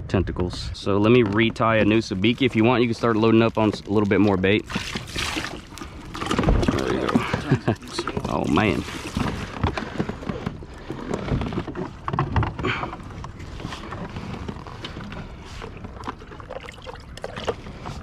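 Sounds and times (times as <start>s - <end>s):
kayak handling clicks and knocks: 1.0s - 2.3s, 4.7s - 16.4s.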